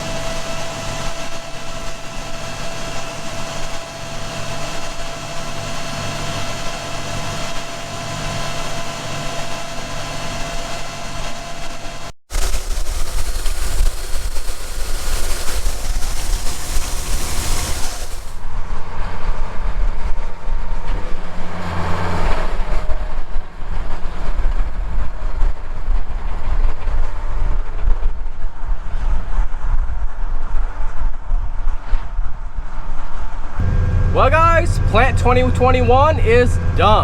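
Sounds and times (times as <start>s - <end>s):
loud hiss: 12.3s - 18.4s
tractor engine rumble: 33.6s - 37.0s.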